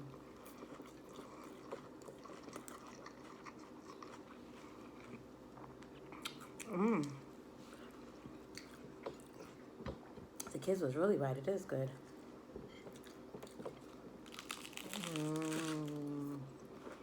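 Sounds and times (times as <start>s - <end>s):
close-up chewing: 0.1s - 9.8s, 12.8s - 17.0s
person humming mmm: 6.6s - 7.3s, 14.8s - 16.6s.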